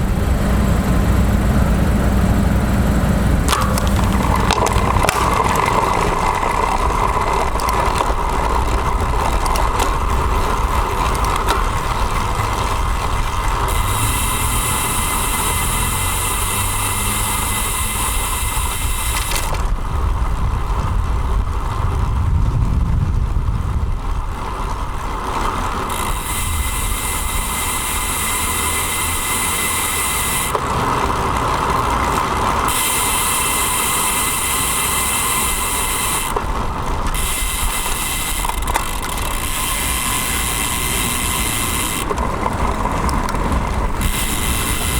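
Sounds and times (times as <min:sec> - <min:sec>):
bike rattling: 0:00.0 - 0:44.9
road rumble: 0:00.0 - 0:44.9
wind noise: 0:02.8 - 0:28.5.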